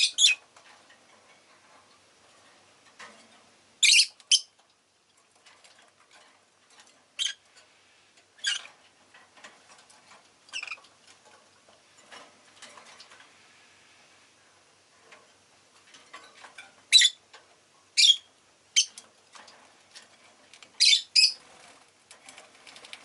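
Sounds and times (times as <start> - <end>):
lovebird chirping: 0.0 - 0.4, 3.8 - 4.5, 7.2 - 7.4, 8.4 - 8.7, 16.9 - 17.2, 18.0 - 19.0, 20.8 - 21.4
rustling: 18.8 - 23.0
faint clicks: 22.1 - 23.0.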